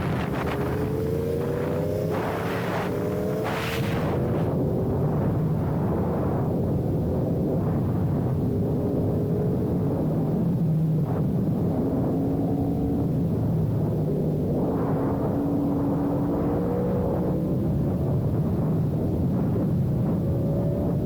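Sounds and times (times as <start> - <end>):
motorcycle engine revving: 0.0 - 4.5
wind rumble on microphone: 0.0 - 21.0.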